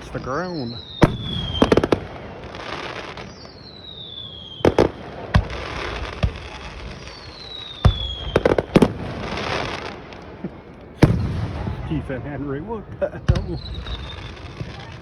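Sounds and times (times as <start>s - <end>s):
firework whistles falling: 0.0s - 9.9s, 13.3s - 15.0s
firework crackling: 0.0s - 15.0s
firework shells bursting with booms: 0.0s - 15.0s.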